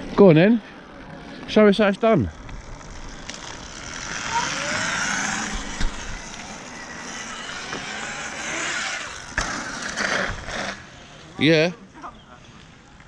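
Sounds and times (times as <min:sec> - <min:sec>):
electric motor whine: 0:01.9 - 0:10.9.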